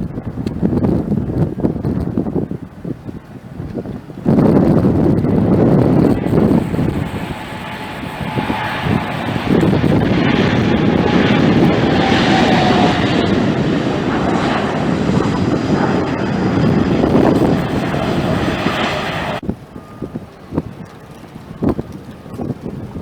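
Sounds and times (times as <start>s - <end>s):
jet airliner passing: 2.4s - 20.5s.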